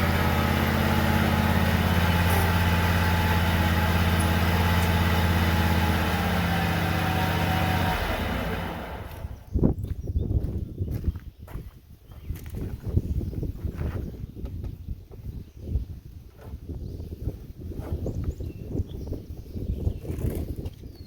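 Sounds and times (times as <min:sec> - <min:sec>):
tractor engine running: 0:00.0 - 0:09.5.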